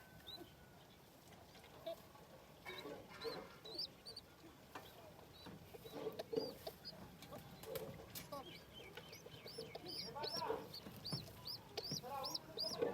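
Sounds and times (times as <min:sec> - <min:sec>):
young birds peeping: 0:00.0 - 0:12.9
lower bird calls: 0:08.3 - 0:12.8.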